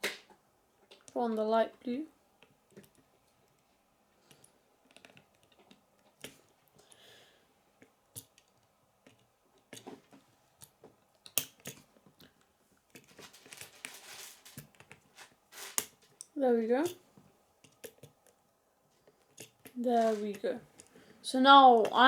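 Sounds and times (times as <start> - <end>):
soft rustle: 11.8 - 17.4, 18.1 - 21.3.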